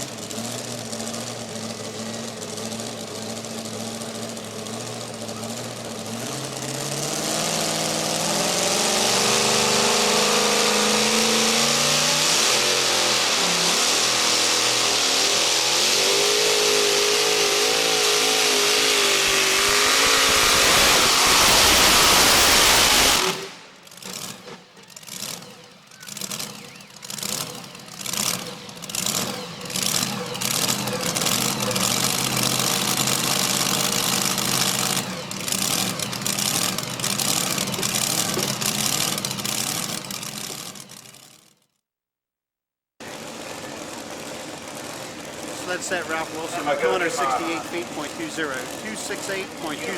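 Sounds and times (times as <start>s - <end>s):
lower engine sound surging: 0.0s - 41.0s, 43.0s - 49.9s
truck engine running flat out: 0.0s - 41.6s, 43.0s - 49.9s.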